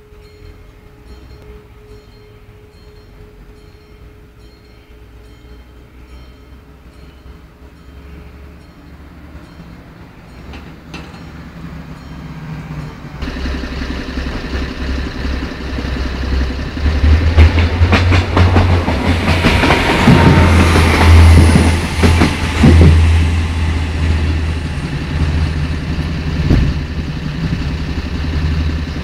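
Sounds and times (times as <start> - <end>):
train approaching with low drone: 0.0 - 29.0
wheel clatter over rails: 10.3 - 29.0.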